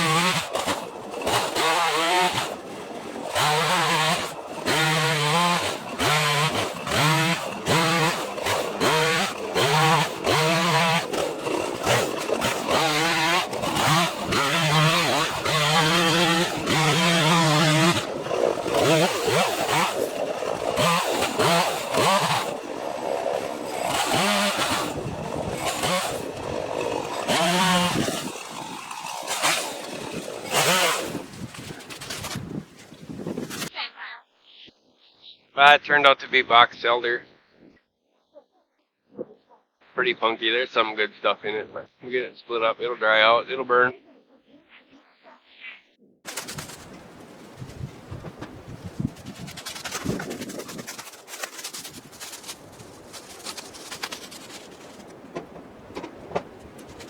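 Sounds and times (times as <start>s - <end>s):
chainsaw cutting wood: 0.0s - 33.7s, 46.3s - 57.0s.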